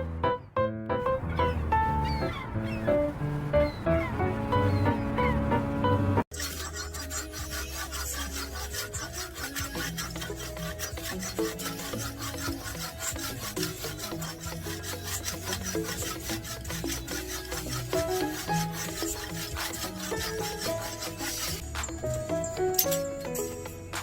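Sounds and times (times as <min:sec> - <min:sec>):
background music with bass: 0:00.0 - 0:24.0
rasping strokes on wood: 0:06.3 - 0:23.0.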